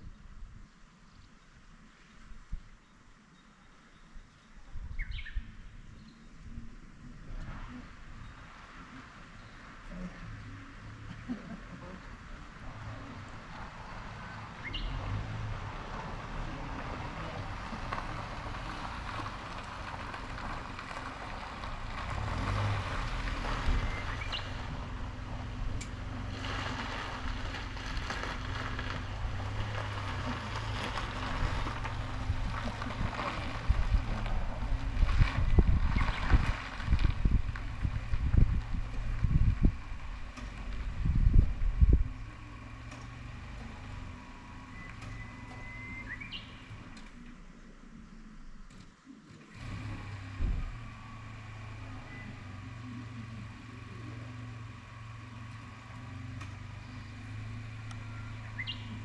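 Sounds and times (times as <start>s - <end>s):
wind buffeting microphone: 28.1s - 42.3s.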